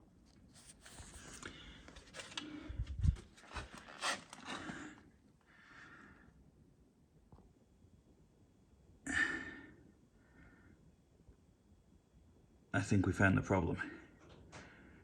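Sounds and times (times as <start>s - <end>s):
handling noises rubbing and clicking: 0.2s - 4.9s.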